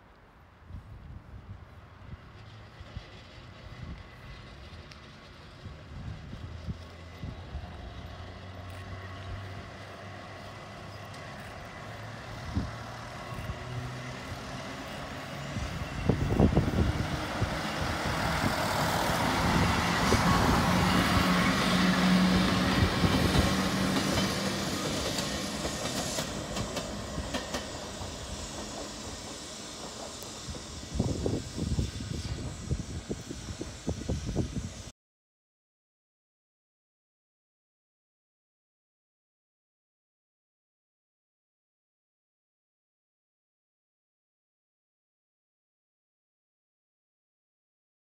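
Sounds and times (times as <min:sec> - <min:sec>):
train passing by: 0:00.2 - 0:34.9.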